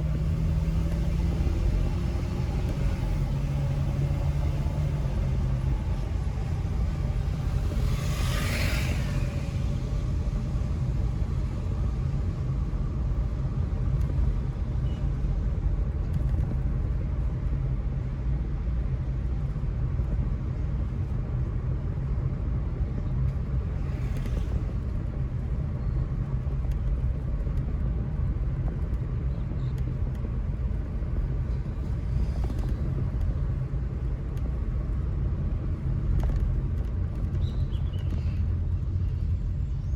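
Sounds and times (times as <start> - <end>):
car road rumble: 0.0 - 39.9
passing traffic: 0.0 - 39.9.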